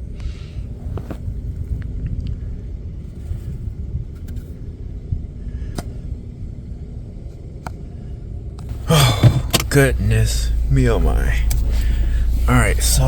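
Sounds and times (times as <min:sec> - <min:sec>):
car engine idling: 0:08.6 - 0:13.0.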